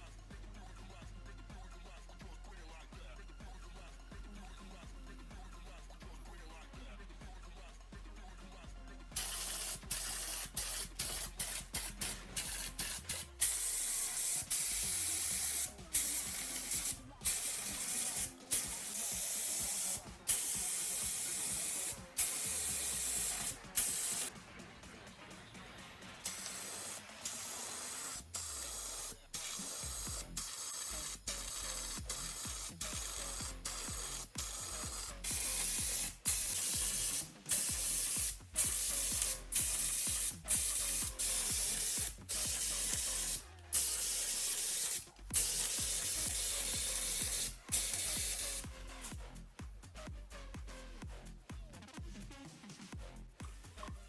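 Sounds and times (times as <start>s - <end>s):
spray paint hissing: 9.2s - 24.4s, 26.2s - 49.4s.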